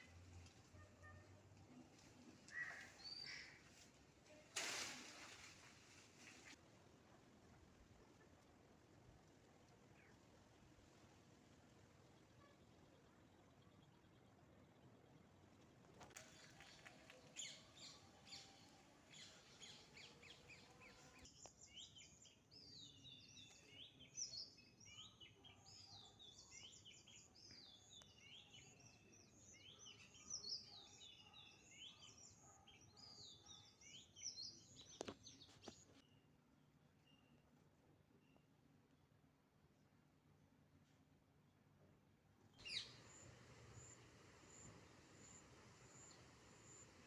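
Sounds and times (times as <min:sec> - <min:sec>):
small birds chirping: 0:16.2 - 0:36.3, 0:42.6 - 0:47.0
faint high bird chirps: 0:42.6 - 0:47.0.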